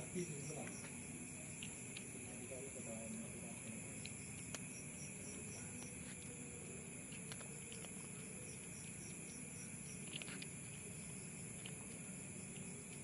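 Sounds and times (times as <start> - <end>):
high insect drone: 0.0 - 13.0
quick insect chirps: 3.7 - 13.0
cat chewing clicks: 7.0 - 13.0.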